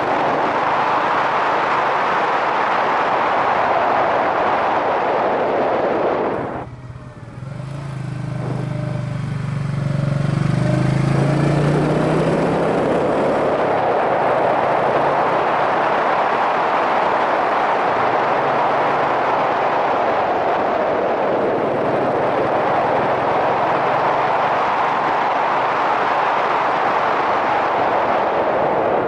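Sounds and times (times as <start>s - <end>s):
wind rushing over microphone: 0.0s - 29.0s
motorcycle engine: 6.2s - 15.9s.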